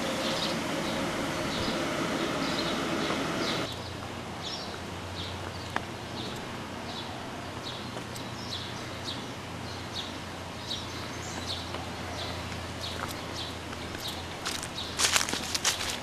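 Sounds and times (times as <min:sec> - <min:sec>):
low hum: 0:00.0 - 0:03.9
bird chirping: 0:00.0 - 0:15.1
outdoor background noise: 0:00.0 - 0:16.0.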